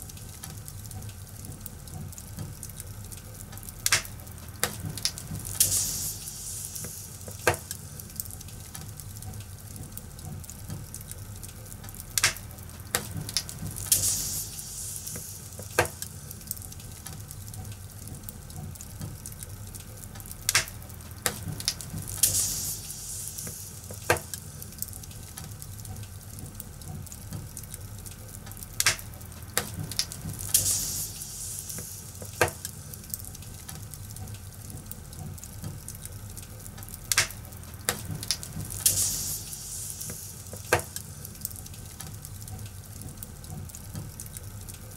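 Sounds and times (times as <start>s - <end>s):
fire popping: 0.0s - 44.9s
wood fire crackling: 0.0s - 44.9s
fire hissing flare-ups: 2.7s - 9.0s, 12.0s - 17.5s, 20.4s - 25.4s, 28.8s - 34.1s, 37.1s - 42.4s.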